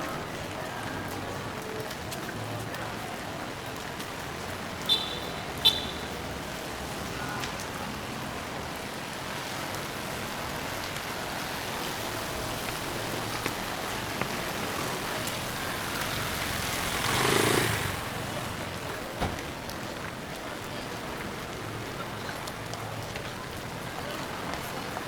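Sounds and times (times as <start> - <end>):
steady rain: 0.0 - 25.0
car tyres hissing on wet road: 4.9 - 19.8.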